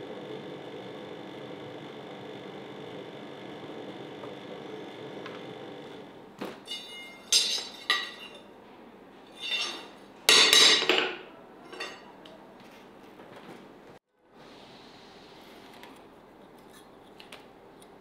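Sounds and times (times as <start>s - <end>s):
hard objects clinking together: 6.6s - 8.5s.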